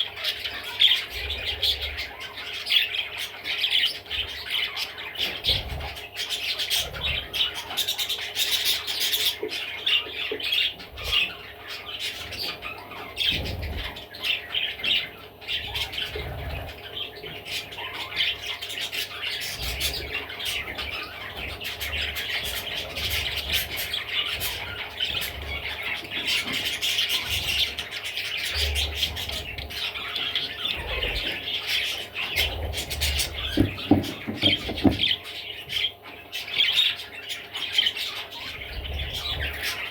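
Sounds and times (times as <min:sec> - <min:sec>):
budgerigar chattering and squawking: 0:00.0 - 0:39.9
low thumps: 0:33.6 - 0:35.1.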